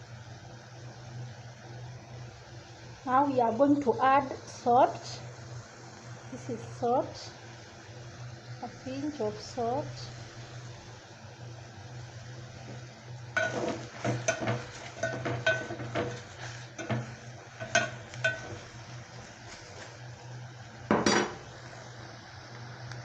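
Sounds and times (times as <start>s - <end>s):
steady low hum: 0.0s - 23.0s
metal spoon clinking in pot: 13.4s - 18.7s
spoon clattering: 13.4s - 18.8s.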